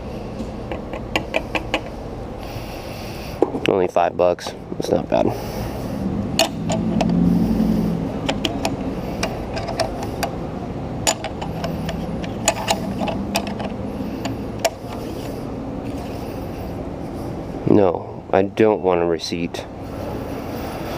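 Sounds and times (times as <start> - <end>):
low hum: 0.0 - 20.9
fuel nozzle clicks and knocks: 0.7 - 1.9, 8.2 - 10.4.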